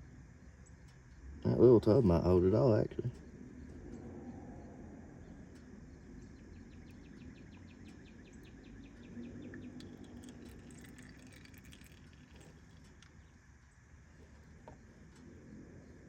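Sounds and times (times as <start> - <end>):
faint steady hum: 0.0 - 16.0
high chirps and clicks: 6.8 - 13.4.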